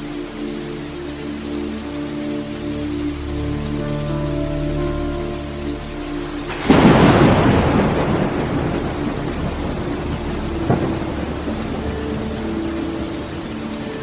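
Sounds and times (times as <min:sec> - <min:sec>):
steady rain: 0:00.0 - 0:14.0
smaller thunder crack: 0:06.5 - 0:11.9
thunderclap rumbling: 0:06.5 - 0:14.0.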